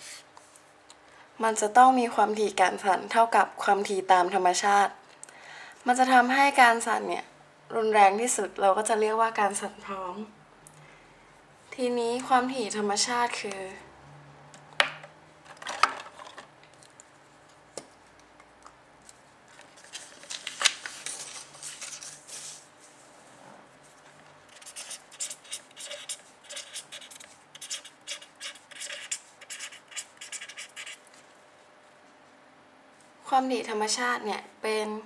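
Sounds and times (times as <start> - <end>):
pen scratching on paper: 24.5 - 31.0.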